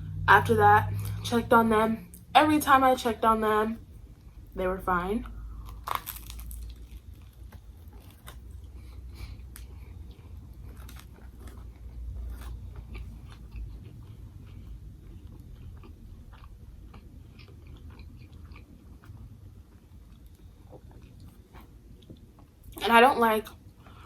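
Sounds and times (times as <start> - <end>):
person chewing crunchy food: 5.2 - 22.8.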